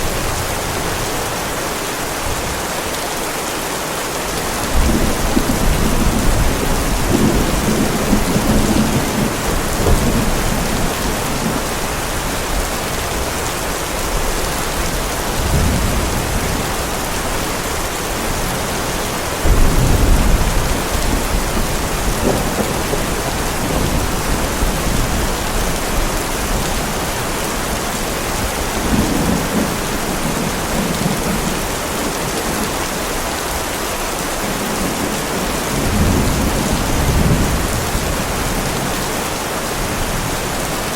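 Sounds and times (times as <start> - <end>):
heavy rain falling: 0.0 - 40.9
thunder rumbling: 4.5 - 33.0, 34.4 - 39.1
loud thunderclap: 4.7 - 11.8, 15.4 - 17.2, 19.4 - 26.6.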